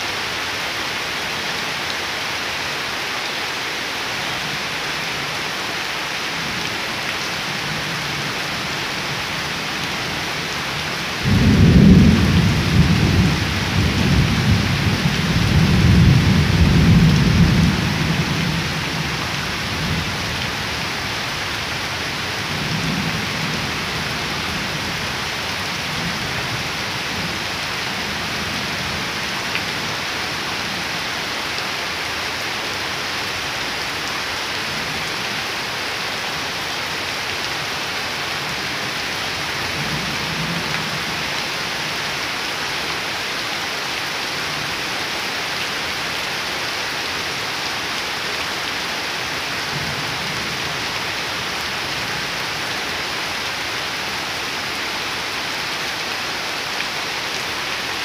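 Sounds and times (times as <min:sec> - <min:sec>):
heavy rain on puddles and leaves: 0:00.0 - 0:58.0
thunder rolling: 0:11.2 - 0:17.8.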